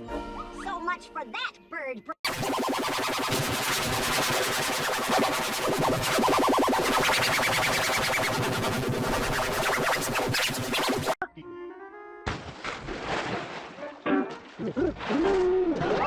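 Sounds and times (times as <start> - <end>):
distorted layered cartoon soundtrack: 2.2 - 11.2.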